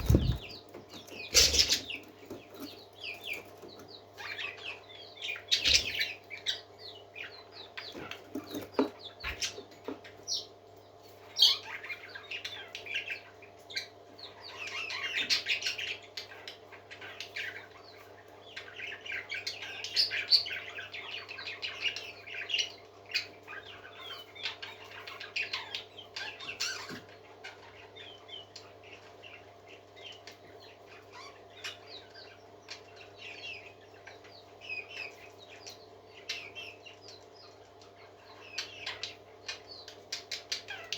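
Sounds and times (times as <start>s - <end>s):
steady low hum: 0.0s - 8.0s
parakeets chirping and warbling: 0.0s - 40.9s.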